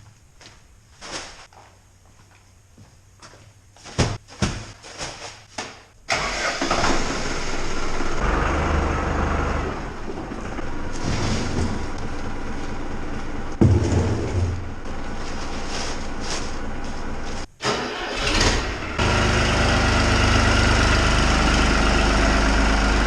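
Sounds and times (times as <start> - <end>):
engine starting and humming: 6.1 - 15.2, 16.4 - 23.0.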